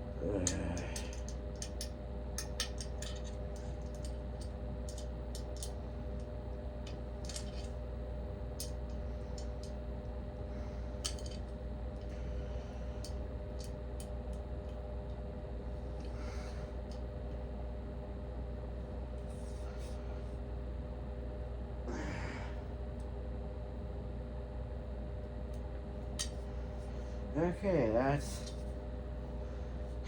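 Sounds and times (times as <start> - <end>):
steady low hum: 0.0 - 30.0
clicks of lamp parts handled: 0.4 - 7.8, 8.6 - 9.8, 11.0 - 12.2, 26.2 - 26.4.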